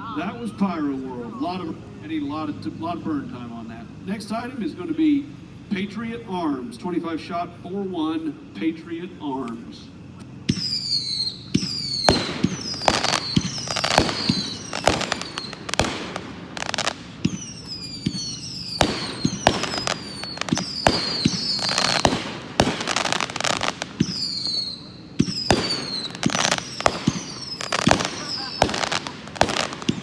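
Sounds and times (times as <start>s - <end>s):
firework cake sharp reports: 0.1s - 30.0s
firework whistles falling in pitch: 10.5s - 30.0s.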